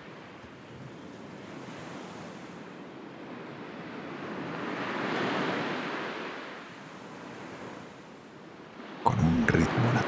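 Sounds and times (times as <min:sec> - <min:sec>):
sea surf washing onto shore: 0:09.0 - 0:10.0.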